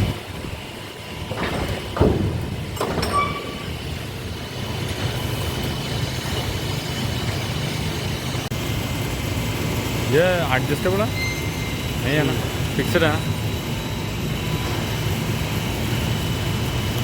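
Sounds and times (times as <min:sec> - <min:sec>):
workshop machinery humming: 0:00.0 - 0:17.0
sharp metal knocks: 0:01.3 - 0:03.8.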